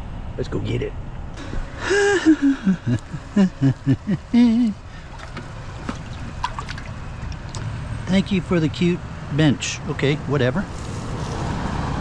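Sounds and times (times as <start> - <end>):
steady background noise: 0.0 - 12.0
person mumbling or humming: 1.8 - 4.9.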